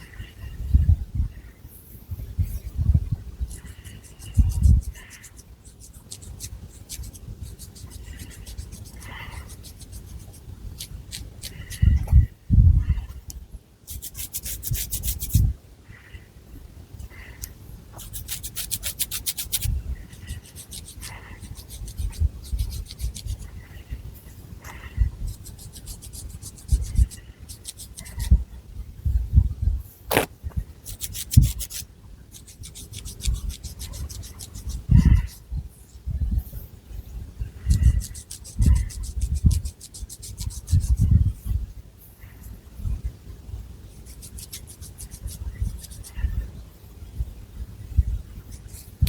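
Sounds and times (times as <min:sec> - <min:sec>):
fingernails scratching hair: 0:03.5 - 0:11.9, 0:13.9 - 0:15.5, 0:18.0 - 0:23.5, 0:25.3 - 0:28.4, 0:30.1 - 0:35.4, 0:37.7 - 0:41.1, 0:44.0 - 0:46.3, 0:48.5 - 0:49.0
hair rubbing against microphone: 0:03.5 - 0:12.1, 0:13.9 - 0:15.5, 0:18.0 - 0:23.8, 0:25.1 - 0:28.4, 0:30.1 - 0:36.0, 0:37.6 - 0:41.6, 0:43.9 - 0:46.4, 0:48.3 - 0:49.0.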